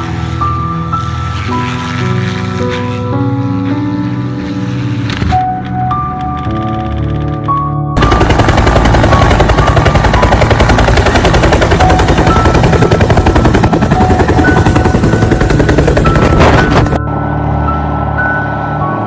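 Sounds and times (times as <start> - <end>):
helicopter rotor beating: 6.3 - 17.0.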